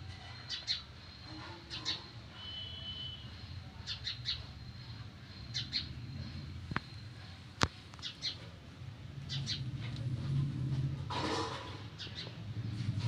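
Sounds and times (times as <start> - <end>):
small birds chirping: 0.2 - 8.5, 9.2 - 9.7, 12.0 - 12.4.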